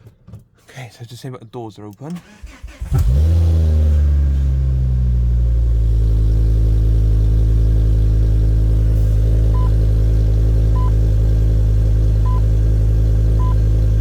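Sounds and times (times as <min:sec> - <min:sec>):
car engine idling: 0:02.2 - 0:14.0.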